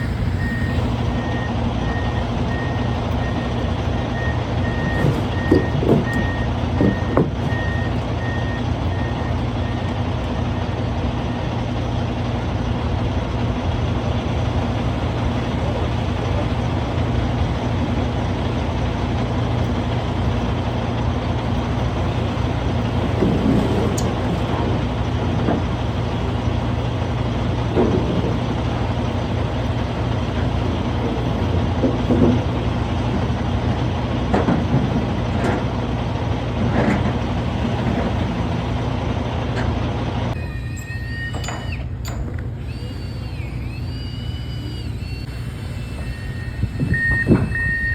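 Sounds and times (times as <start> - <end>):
diesel truck engine running: 0.0 - 47.9
knocks and clunks: 2.4 - 8.5, 21.6 - 40.0, 46.8 - 47.9.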